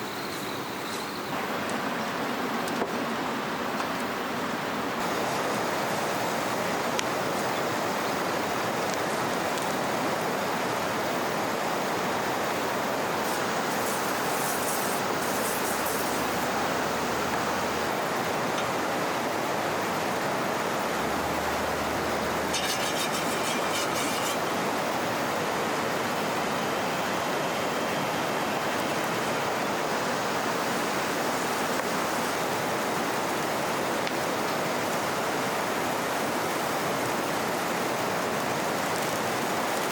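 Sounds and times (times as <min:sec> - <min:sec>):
flowing river water: 0:01.3 - 0:39.9
high chirring: 0:21.8 - 0:24.6.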